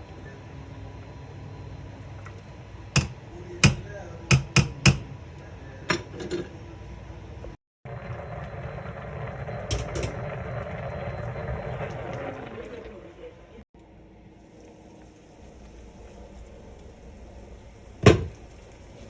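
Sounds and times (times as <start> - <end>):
steady noise: 7.9 - 13.6.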